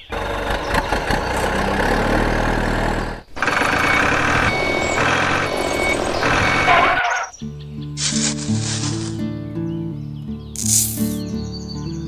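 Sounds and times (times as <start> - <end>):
reversing alarm beeping: 0.0 - 7.4
truck engine running: 0.0 - 7.4
music: 7.4 - 12.0.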